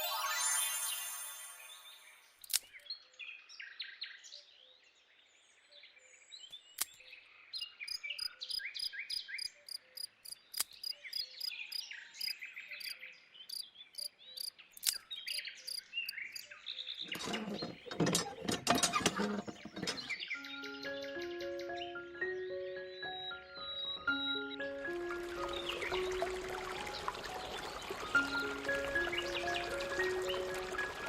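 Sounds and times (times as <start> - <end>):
small birds chirping: 5.6 - 31.0
high regular ticks: 9.4 - 11.5, 12.8 - 16.4.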